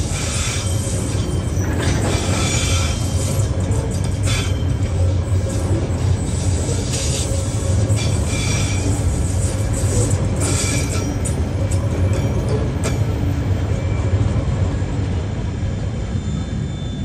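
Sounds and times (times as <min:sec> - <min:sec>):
wheel hiss and squeal: 0:00.0 - 0:11.3, 0:16.1 - 0:17.0
freight train wheels rumbling: 0:00.0 - 0:17.0.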